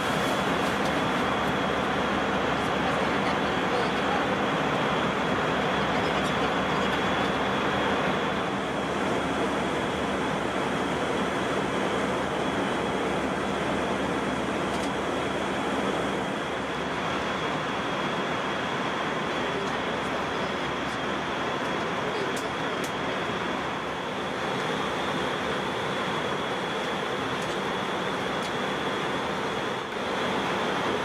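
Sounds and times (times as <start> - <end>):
airliner cabin noise: 0.0 - 31.0
faint high whine: 0.0 - 31.0.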